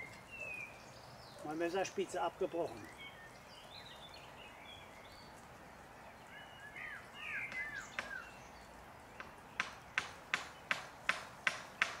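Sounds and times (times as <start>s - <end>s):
songbird chirping: 0.0s - 12.0s
sharp taps: 9.2s - 12.0s.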